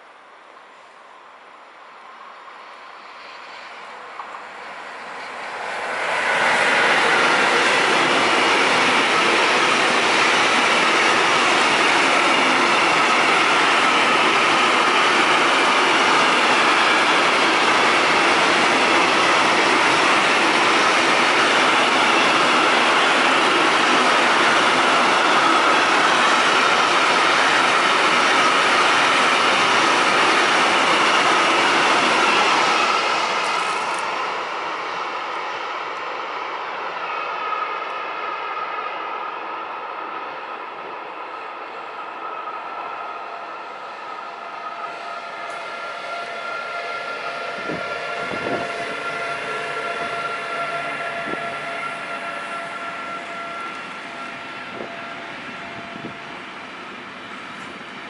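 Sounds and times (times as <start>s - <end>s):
freight train wagons rolling past: 2.9s - 34.7s.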